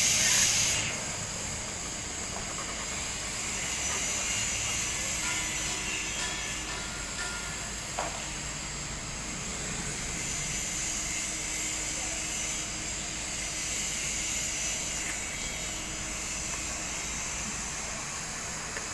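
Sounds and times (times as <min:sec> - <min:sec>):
welding arc hissing: 0:00.0 - 0:07.3.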